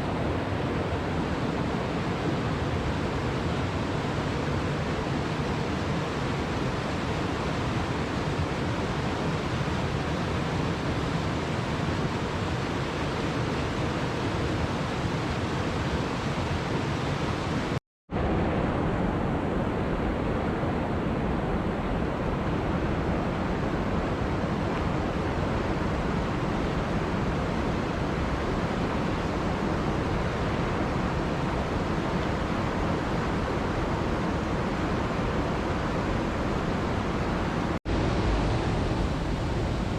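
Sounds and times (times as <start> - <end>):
waterfall rushing: 23.4 - 39.9.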